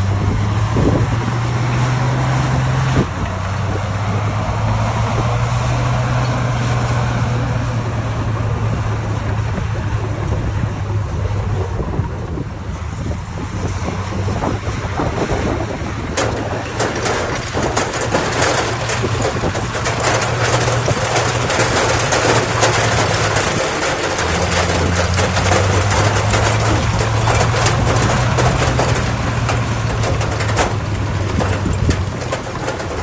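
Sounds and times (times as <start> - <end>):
diesel machinery running: 0.0 - 33.0
gritty rattle and crackle: 0.0 - 33.0.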